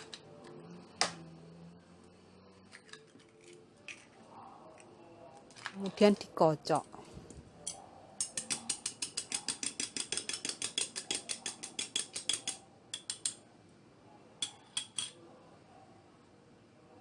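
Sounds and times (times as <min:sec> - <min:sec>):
utensil beating eggs in a bowl: 0:08.2 - 0:13.3.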